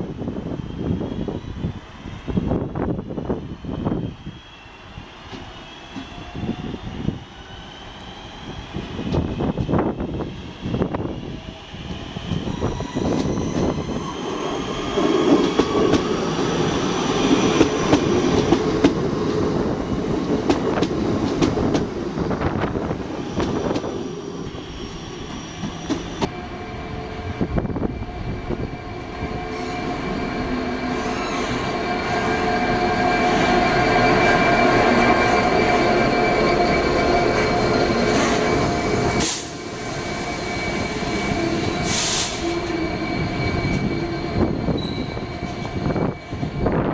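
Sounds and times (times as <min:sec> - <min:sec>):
train whine with held tones: 0:00.0 - 0:46.9.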